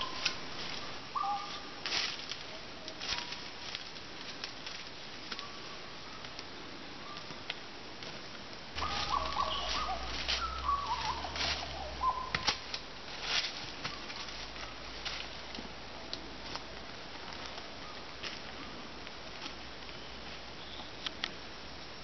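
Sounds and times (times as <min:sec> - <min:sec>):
bird chirps: 0:01.2 - 0:01.7, 0:08.8 - 0:12.4
whistled bird notes: 0:08.8 - 0:12.4.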